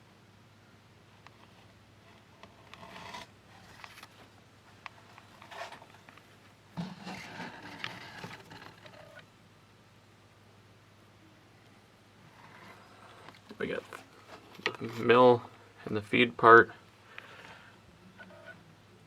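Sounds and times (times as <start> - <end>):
handling noise rubbing and scraping: 1.3 - 9.2, 12.3 - 15.4.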